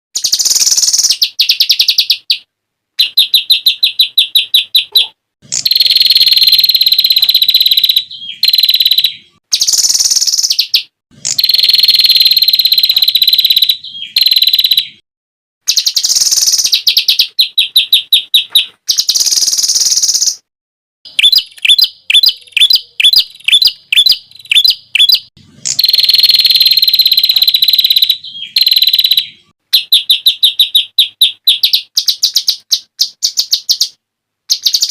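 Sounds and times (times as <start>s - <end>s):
songbird fast repeated high notes: 3.0s - 15.0s, 21.1s - 32.6s.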